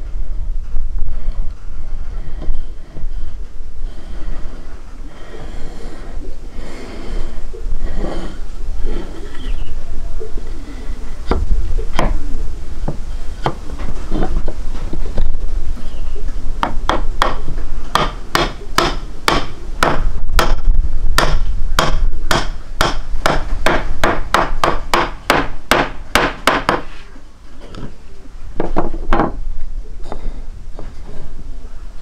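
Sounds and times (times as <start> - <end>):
sharp hammering knocks: 16.6 - 26.9.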